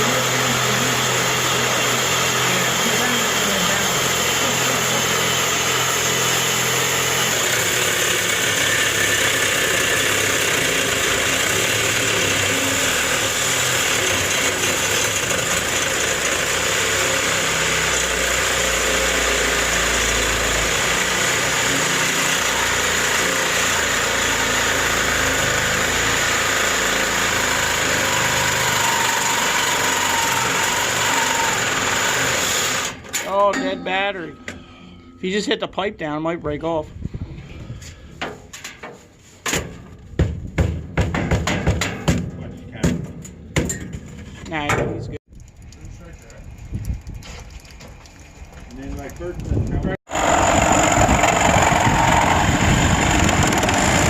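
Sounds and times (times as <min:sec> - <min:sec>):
cordless cutting tool whining: 0:00.0 - 0:33.3, 0:50.1 - 0:54.0.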